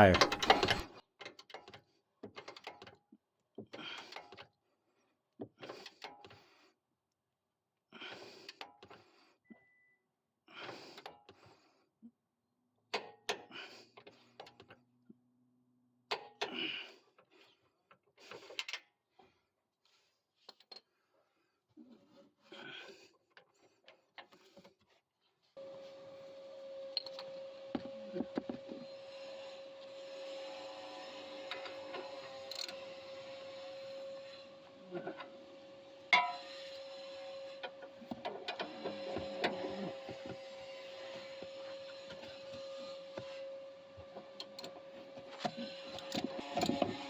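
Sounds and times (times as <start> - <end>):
torque wrench clicks: 32.5 - 32.8.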